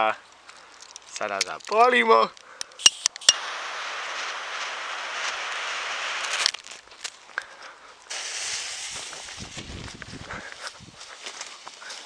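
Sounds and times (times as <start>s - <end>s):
firecracker fuse hissing: 2.6s - 7.0s, 8.0s - 12.0s.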